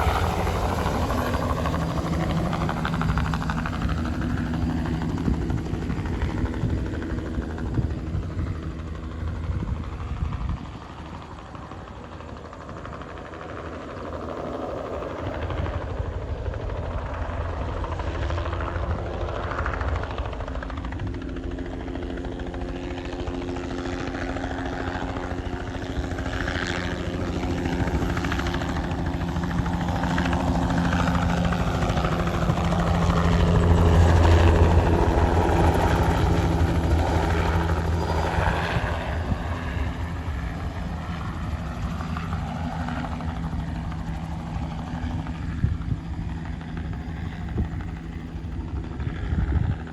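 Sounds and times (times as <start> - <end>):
helicopter rotor and engine: 0.0 - 49.9.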